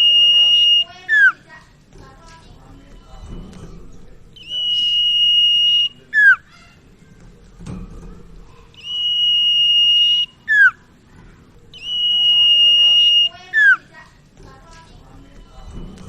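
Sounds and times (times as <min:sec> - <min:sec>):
bird whistling song: 0:00.0 - 0:01.4, 0:04.4 - 0:06.6, 0:08.8 - 0:10.9, 0:11.7 - 0:13.9.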